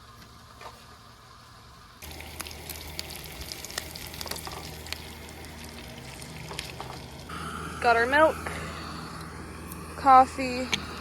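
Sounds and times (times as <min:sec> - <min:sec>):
bacon sizzling in a frying pan: 0:02.0 - 0:07.8.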